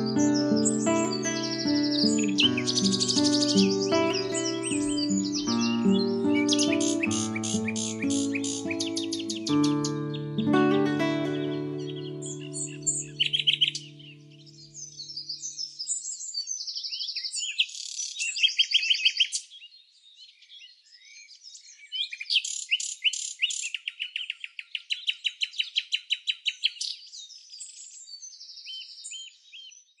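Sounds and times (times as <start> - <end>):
birds singing and trilling: 0.0 - 30.0.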